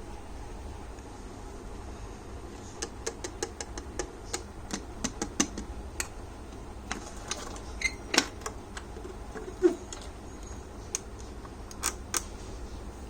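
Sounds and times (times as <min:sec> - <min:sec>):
sharp clicks and taps: 0:02.8 - 0:06.2.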